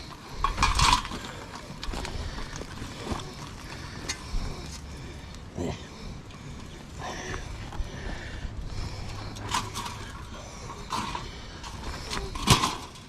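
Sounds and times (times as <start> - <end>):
low steady background noise: 0.0 - 13.0
camp gear knocks and clatters: 9.4 - 13.0.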